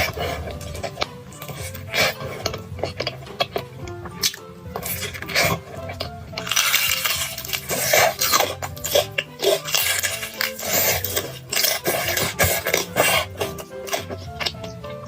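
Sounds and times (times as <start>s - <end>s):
chewing and slurping: 0.0s - 15.0s.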